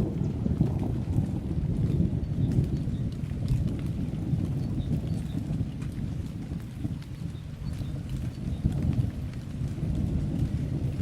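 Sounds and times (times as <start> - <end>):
distant thunder rumbling: 0.0 - 6.4
faint patter of light rain: 0.0 - 11.0.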